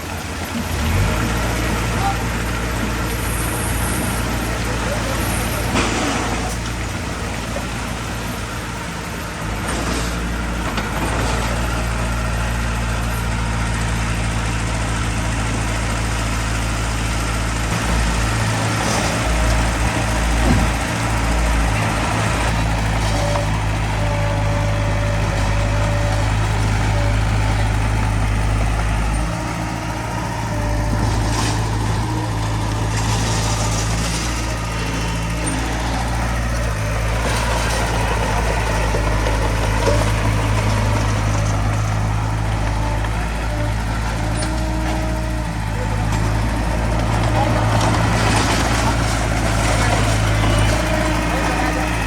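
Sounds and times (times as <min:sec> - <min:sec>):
heavy diesel engine running: 0:00.0 - 0:52.0.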